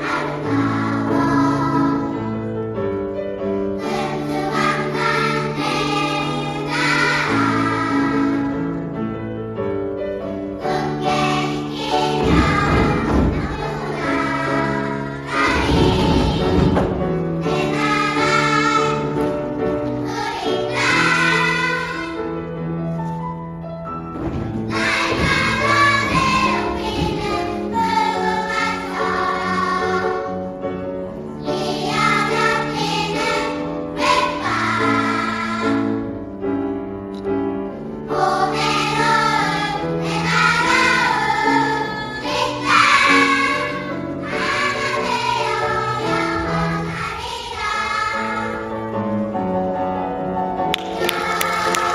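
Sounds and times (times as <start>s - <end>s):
choir singing: 0.0s - 2.7s, 3.8s - 9.0s, 10.5s - 22.6s, 24.6s - 30.6s, 31.4s - 36.2s, 38.0s - 49.0s, 50.8s - 51.9s.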